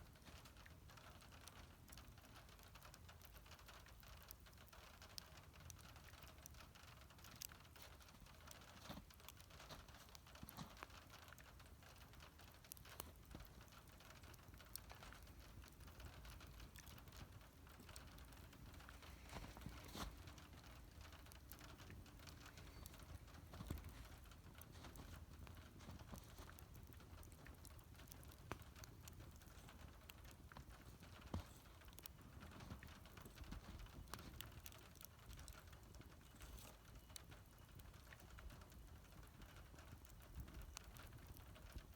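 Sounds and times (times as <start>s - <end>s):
low rumble of burning: 0.0s - 41.9s
wood fire crackling and popping: 0.0s - 41.9s.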